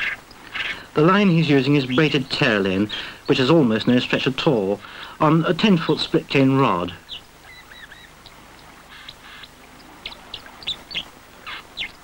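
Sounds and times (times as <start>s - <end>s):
harsh rasping bird calls: 0.0s - 3.5s, 6.8s - 12.0s
birds chirping: 0.0s - 12.0s.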